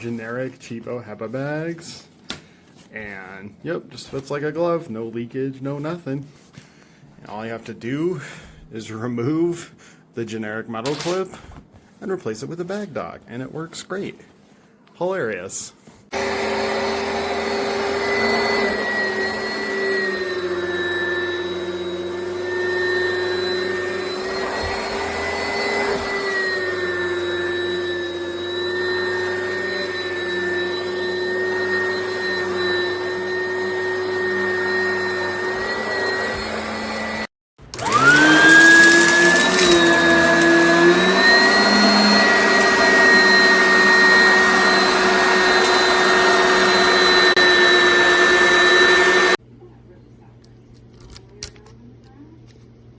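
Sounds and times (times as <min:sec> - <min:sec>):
vacuum motor whine: 0:16.1 - 0:49.4.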